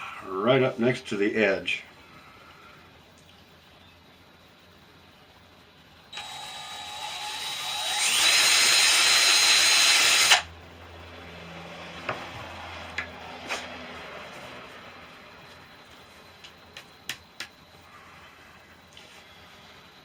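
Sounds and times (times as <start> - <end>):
power drill boring into wood: 6.1 - 10.5.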